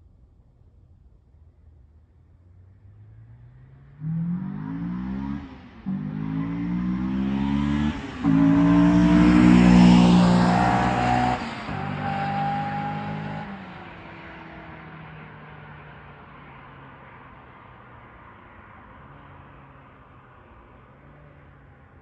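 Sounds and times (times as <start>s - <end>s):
car engine accelerating hard: 4.0s - 15.7s.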